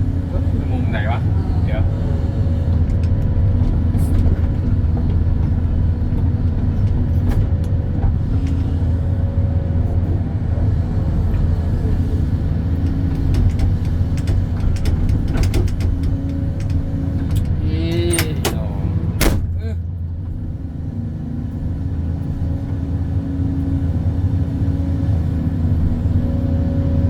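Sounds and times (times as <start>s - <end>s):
excavator diesel engine running: 0.0s - 27.0s
sharp clicks and knocks: 12.8s - 18.6s.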